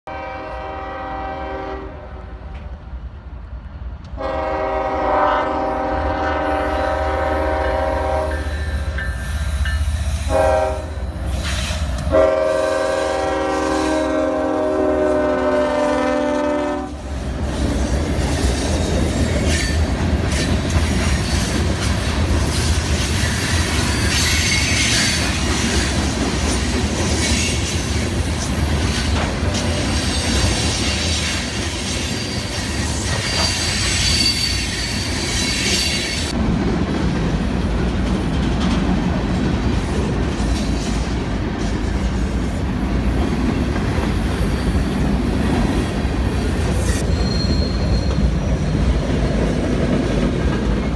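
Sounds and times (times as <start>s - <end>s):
freight train rumbling: 0.1s - 50.9s
wheels squealing on rails: 6.2s - 14.5s, 17.4s - 36.4s, 40.4s - 49.8s.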